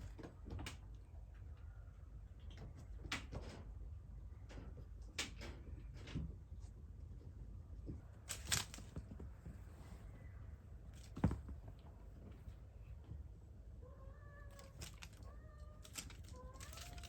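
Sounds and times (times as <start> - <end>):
kittens knocking and tapping: 11.0 - 12.4, 14.5 - 17.0.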